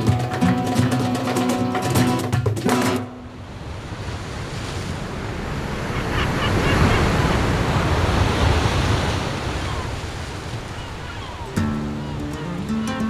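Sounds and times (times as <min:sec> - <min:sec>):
wave washing in: 0:00.0 - 0:13.0.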